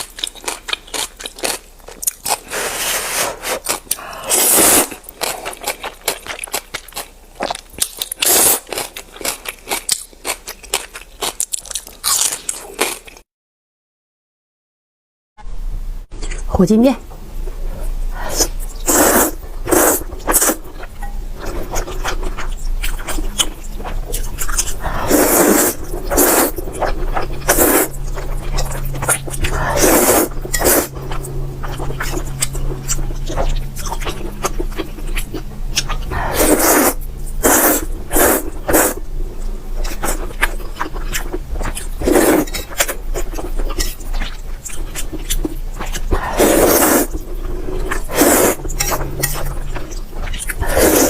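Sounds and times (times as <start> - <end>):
noodles slurped and chewed: 21.4 - 39.0, 39.8 - 51.0.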